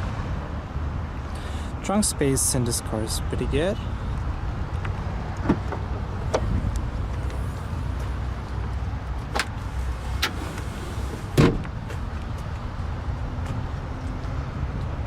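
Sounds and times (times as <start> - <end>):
car trunk clicks and knocks: 9.3 - 11.8.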